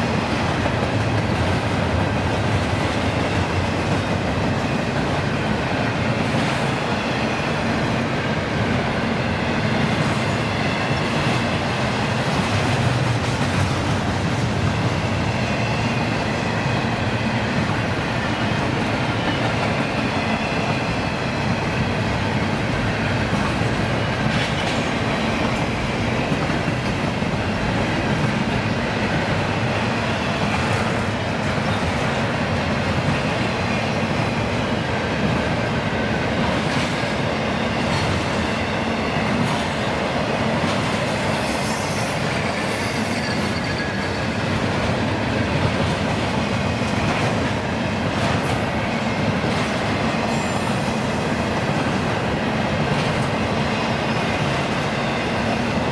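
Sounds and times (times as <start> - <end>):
railroad cars rolling past: 0.0 - 55.9
faint high squeal: 41.4 - 44.6.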